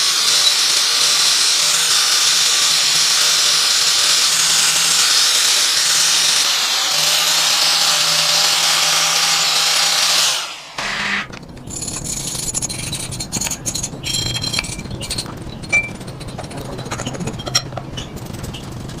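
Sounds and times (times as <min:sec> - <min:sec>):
electric power tool whining: 0:00.0 - 0:11.4.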